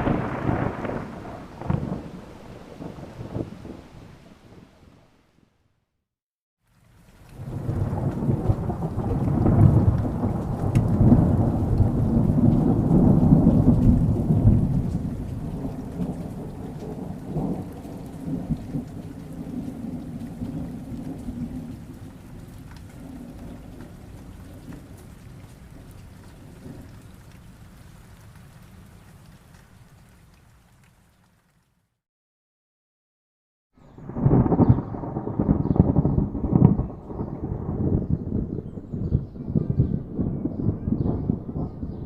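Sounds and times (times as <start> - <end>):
thunder rolling: 0.0 - 5.0, 7.4 - 26.9, 33.9 - 42.0
rain: 0.0 - 5.4, 6.6 - 32.0, 33.8 - 42.0.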